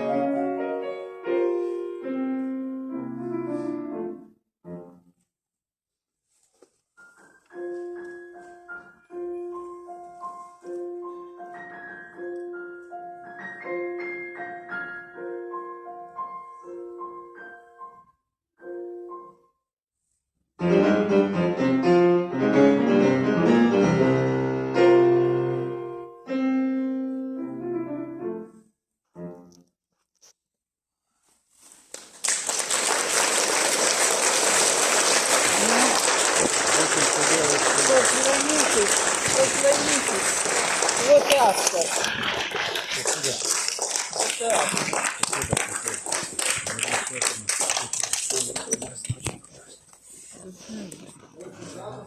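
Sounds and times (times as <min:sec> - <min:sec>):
solo piano: 0:20.6 - 0:28.6
audience applause: 0:32.0 - 0:49.2.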